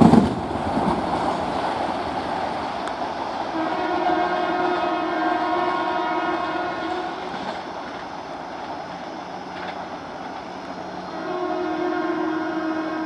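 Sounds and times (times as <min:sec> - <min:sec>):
passing train running noise: 0:00.0 - 0:13.0
train horn: 0:03.5 - 0:07.6, 0:10.9 - 0:13.0.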